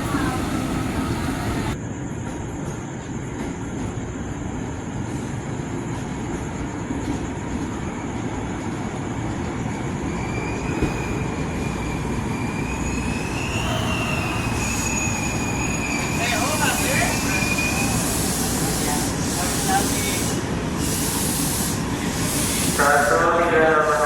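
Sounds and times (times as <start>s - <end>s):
train rumbling on rails: 0.0s - 24.0s
train wheels squealing: 9.7s - 23.1s.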